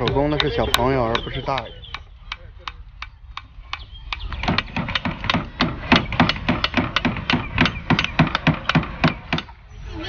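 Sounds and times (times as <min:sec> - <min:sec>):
hammers striking nails into wood: 0:02.7 - 0:09.5.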